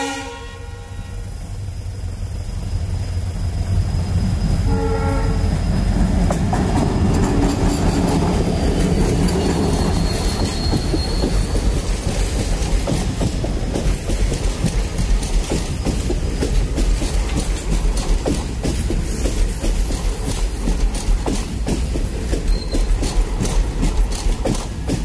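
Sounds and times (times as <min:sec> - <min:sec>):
diesel locomotive engine running: 0:00.0 - 0:25.0
train coaches rumbling past: 0:00.0 - 0:25.0
wheels clickety-clack over rail joints: 0:02.9 - 0:25.0
thin wheel squeal: 0:09.2 - 0:12.3, 0:22.4 - 0:23.0.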